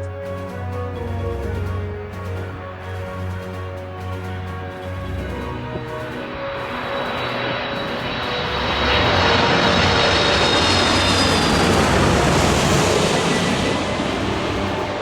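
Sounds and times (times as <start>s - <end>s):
jet airliner engine roar: 0.0s - 15.0s.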